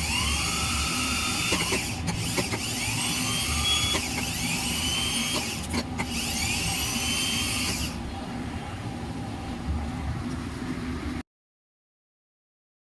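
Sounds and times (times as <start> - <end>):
starter motor whining: 0.0 - 8.0.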